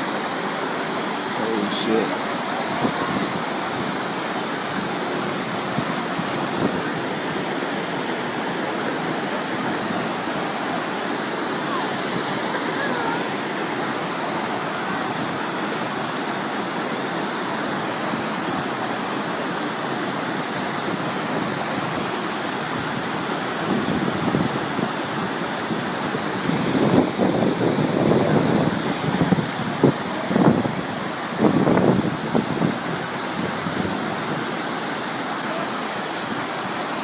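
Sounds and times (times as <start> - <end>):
floodwater rushing: 0.0 - 37.0
wind buffeting microphone: 2.6 - 15.8, 20.6 - 34.6.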